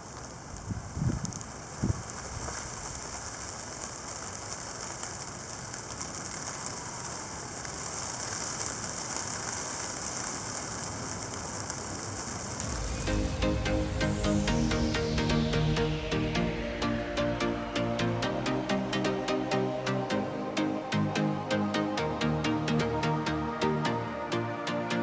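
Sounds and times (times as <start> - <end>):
sleet and wet snow hissing: 0.0 - 25.0
electronic music: 12.6 - 25.0.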